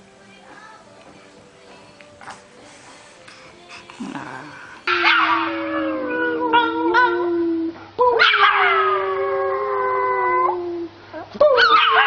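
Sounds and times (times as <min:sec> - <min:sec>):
dog howling: 0:04.1 - 0:10.9
dog yipping: 0:11.5 - 0:12.0.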